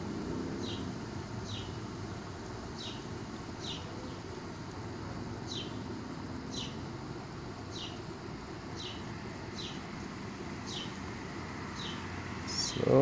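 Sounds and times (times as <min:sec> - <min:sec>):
small bird chirping: 0:00.6 - 0:01.9, 0:02.7 - 0:04.4, 0:05.4 - 0:05.9, 0:06.5 - 0:06.8, 0:07.6 - 0:10.0, 0:10.6 - 0:13.0.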